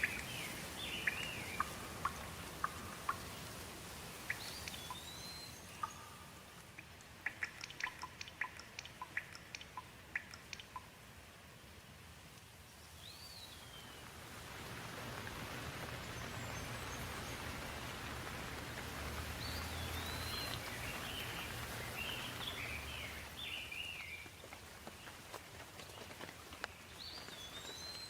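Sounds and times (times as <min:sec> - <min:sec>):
bird chirps: 0:00.0 - 0:03.3, 0:04.2 - 0:06.5, 0:07.2 - 0:10.9, 0:19.4 - 0:24.3
rain falling: 0:00.0 - 0:28.0.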